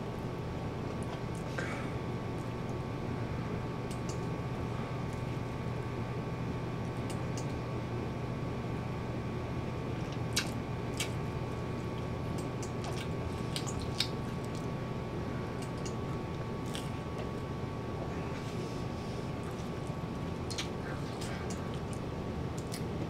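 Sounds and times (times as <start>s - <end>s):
low background hum: 0.0s - 23.0s
person chewing pizza: 9.9s - 14.8s, 15.4s - 17.4s, 18.0s - 23.0s
wet mouth clicks and smacks: 10.3s - 11.2s, 12.4s - 14.7s, 20.4s - 20.8s.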